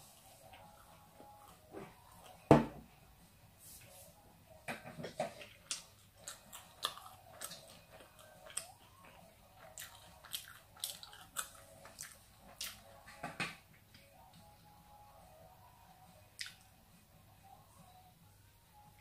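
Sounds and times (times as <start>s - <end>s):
person chewing: 5.3s - 13.0s, 16.4s - 16.7s
mouth clicks and smacks: 16.4s - 16.7s.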